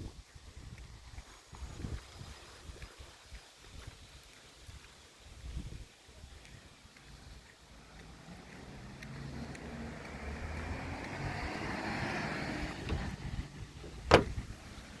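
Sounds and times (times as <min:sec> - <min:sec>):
garbage truck engine passing: 0:08.1 - 0:13.9
sharp knock: 0:14.1 - 0:14.4.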